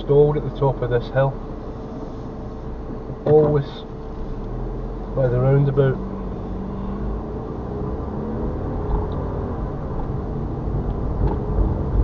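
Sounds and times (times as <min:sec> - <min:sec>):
car engine running under load: 0:00.0 - 0:12.0
road rumble: 0:00.0 - 0:12.0.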